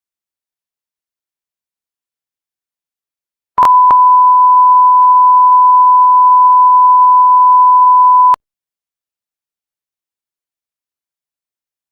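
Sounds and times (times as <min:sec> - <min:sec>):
electronic beep tone: 0:03.6 - 0:08.4.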